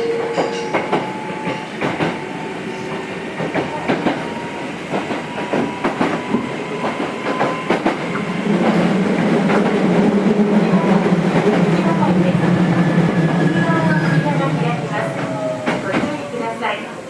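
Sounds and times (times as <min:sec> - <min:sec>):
train wheels clicking over rail joints: 0:00.2 - 0:16.5.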